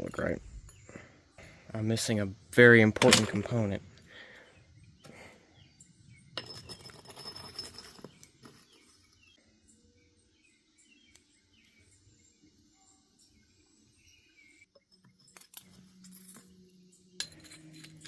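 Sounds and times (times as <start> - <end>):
metal parts clinking and rattling: 6.4 - 9.2, 14.8 - 18.0
faint bird chirps: 8.2 - 18.0.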